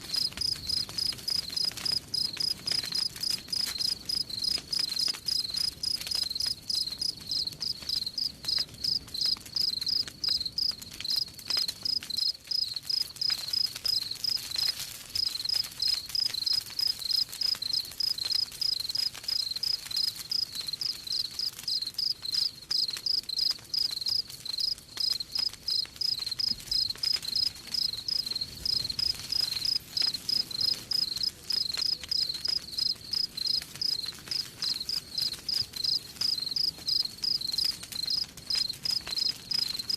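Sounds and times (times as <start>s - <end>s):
faint campfire crackles: 0.0s - 39.9s
crickets chirping: 0.1s - 13.6s, 15.9s - 18.8s, 19.4s - 35.0s, 35.8s - 39.9s.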